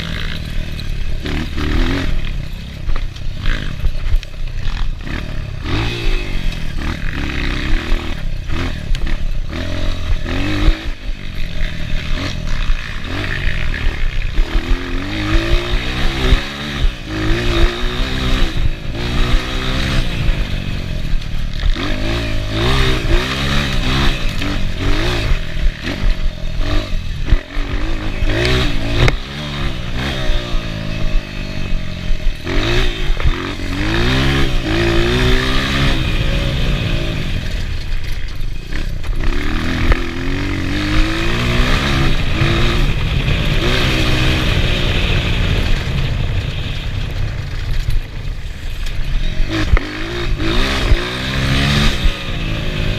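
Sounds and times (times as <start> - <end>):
dirt bike engine revving: 0.0 - 52.9
bike clattering over rough ground: 45.4 - 51.1.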